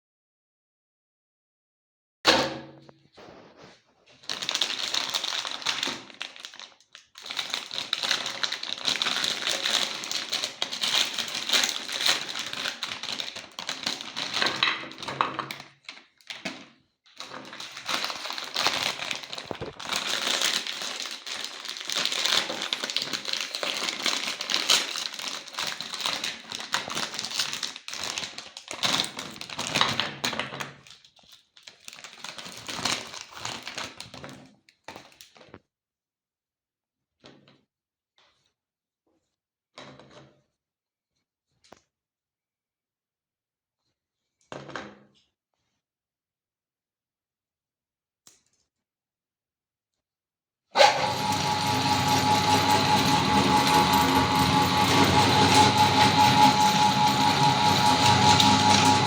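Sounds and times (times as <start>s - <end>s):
meat grinder crunching cookies: 3.5s - 35.6s, 50.8s - 59.0s.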